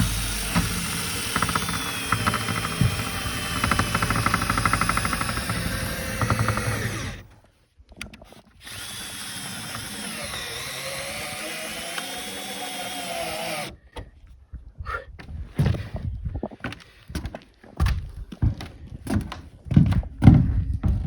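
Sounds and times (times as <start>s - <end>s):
power drill driving screws: 0.0s - 7.3s, 8.6s - 13.8s.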